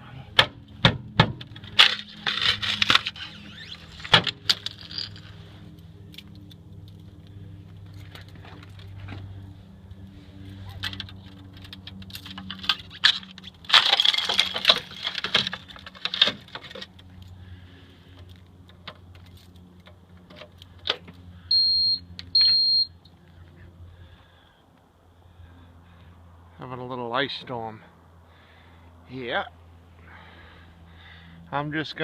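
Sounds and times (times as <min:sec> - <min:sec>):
ice crackling and clattering: 0:01.6 - 0:05.4, 0:10.8 - 0:17.1.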